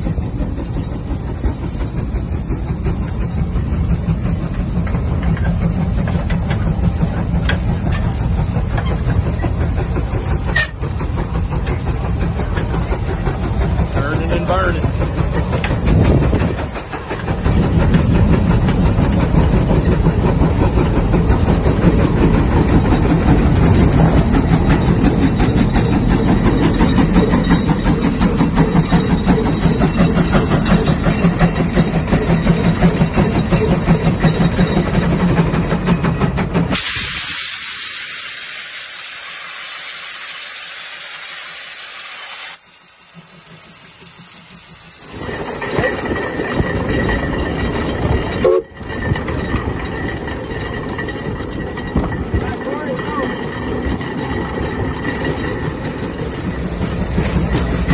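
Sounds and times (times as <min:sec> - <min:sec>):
steam engine rhythmic beat: 0:00.0 - 0:36.8
steam hissing: 0:00.0 - 0:47.3.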